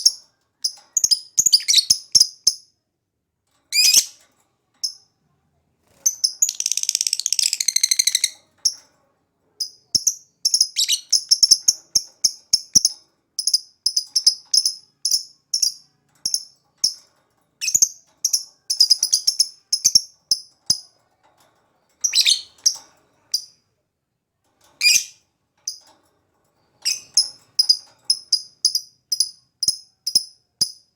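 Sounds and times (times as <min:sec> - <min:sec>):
lovebird trilling and chirping: 0:00.0 - 0:02.6, 0:03.7 - 0:04.2, 0:06.1 - 0:08.8, 0:10.0 - 0:17.0, 0:17.6 - 0:20.8, 0:22.0 - 0:23.5, 0:24.8 - 0:25.8, 0:26.8 - 0:30.2.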